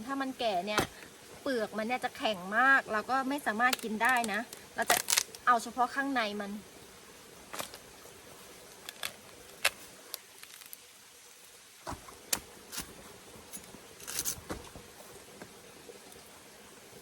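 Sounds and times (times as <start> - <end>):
seed pod shell cracking: 3.7 - 5.4.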